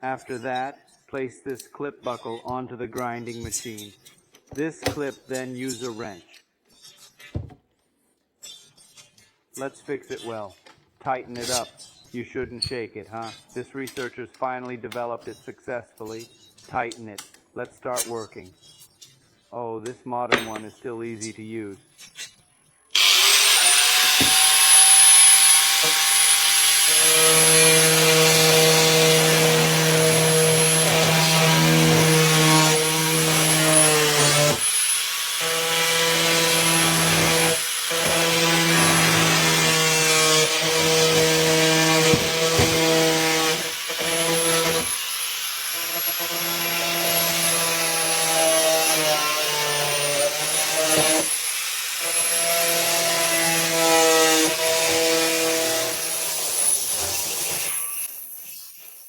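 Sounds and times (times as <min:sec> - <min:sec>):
power chisel cutting wood: 0:04.6 - 0:06.1, 0:22.9 - 0:59.0.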